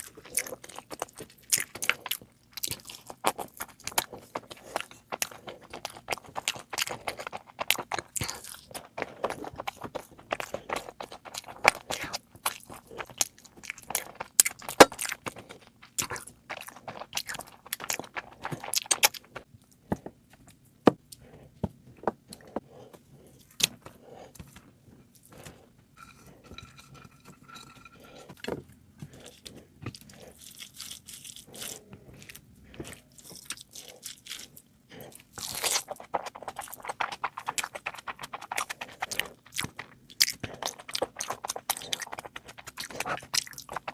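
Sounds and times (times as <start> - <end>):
person chewing and crunching food: 0.0 - 43.9
clicks and scrapes: 25.4 - 29.5.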